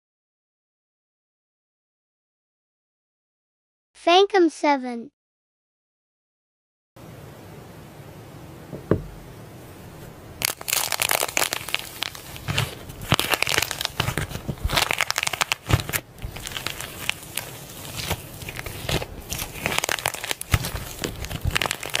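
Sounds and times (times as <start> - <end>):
slime crackling and popping: 10.4 - 22.0.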